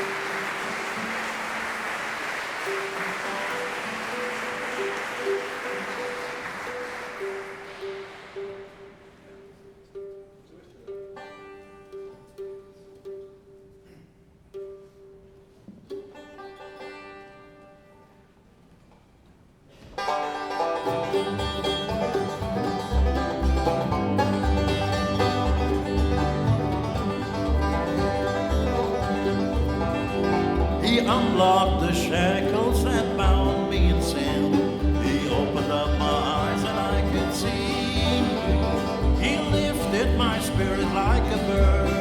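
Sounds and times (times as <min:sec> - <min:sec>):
bluegrass band playing: 0:00.0 - 0:13.8, 0:14.6 - 0:18.2, 0:19.9 - 0:42.0
repeated plucked notes: 0:02.4 - 0:13.8, 0:20.0 - 0:42.0
low bass beat: 0:21.3 - 0:42.0.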